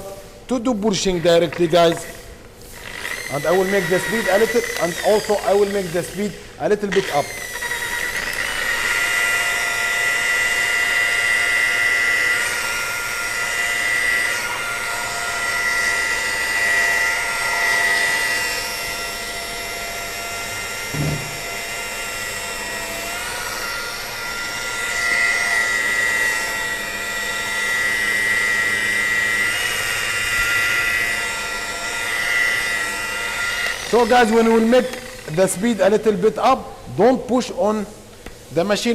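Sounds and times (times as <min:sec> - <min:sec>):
polishing machine whine: 0:19.8 - 0:35.3
brief knock: 0:20.9 - 0:21.6.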